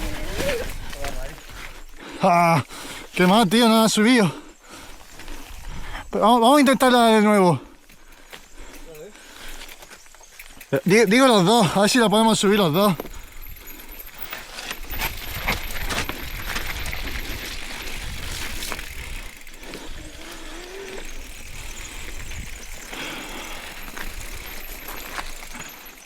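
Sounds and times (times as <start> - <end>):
bike rattling over trail: 0.0 - 26.0.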